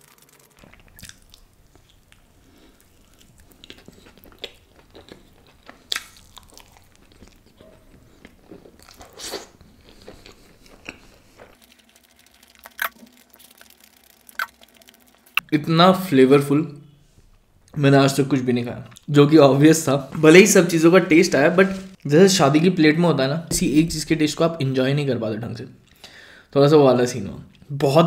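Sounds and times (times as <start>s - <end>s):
chewing with soft crunches: 0.1s - 15.4s.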